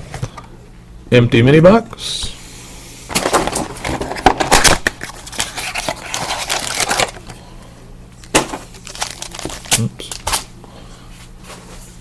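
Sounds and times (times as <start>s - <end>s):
packaging crinkling and crackling: 3.1s - 7.4s, 8.2s - 10.5s.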